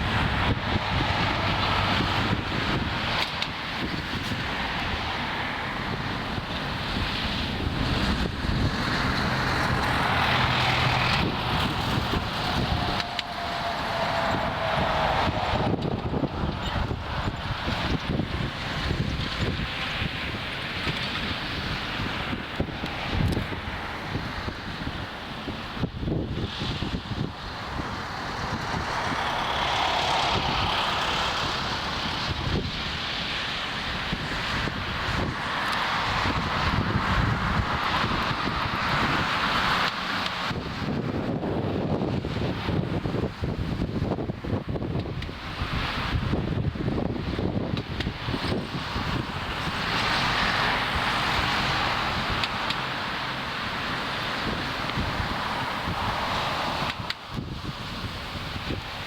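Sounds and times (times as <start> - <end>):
airliner jet engines landing: 0.0 - 59.0
wind buffeting microphone: 0.0 - 59.0.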